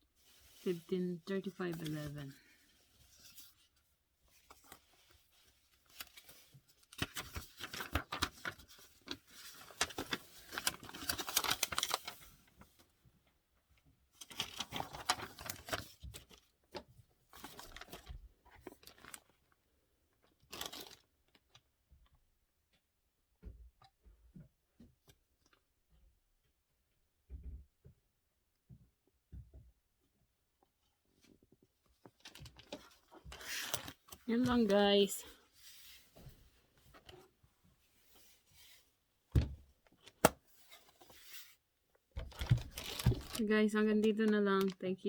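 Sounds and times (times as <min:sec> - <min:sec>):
packaging rustling and crinkling: 0:04.3 - 0:12.9, 0:14.2 - 0:16.5, 0:17.3 - 0:19.5, 0:20.2 - 0:21.7, 0:32.0 - 0:37.4, 0:42.2 - 0:43.5.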